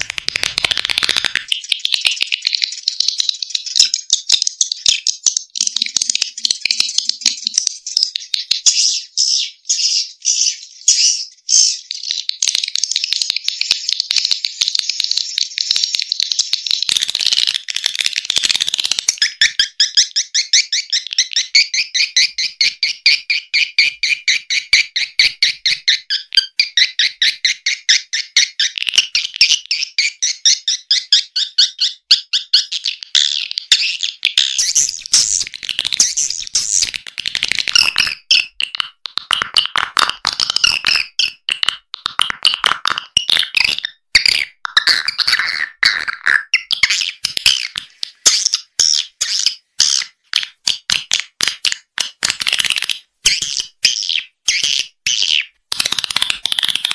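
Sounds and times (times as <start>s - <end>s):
swiftlets twittering chirps: 16.7s - 37.0s.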